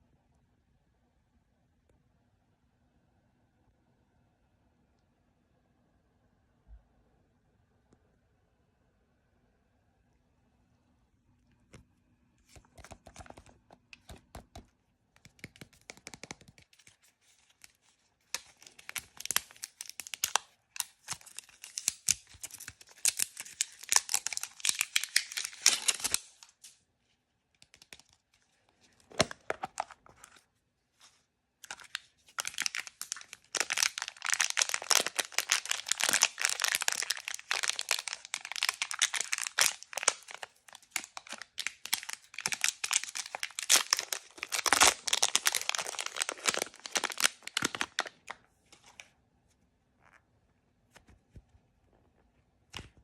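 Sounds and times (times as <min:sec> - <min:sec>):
packaging crinkled and torn: 0:15.5 - 0:26.8, 0:27.6 - 0:28.2, 0:31.6 - 0:49.0.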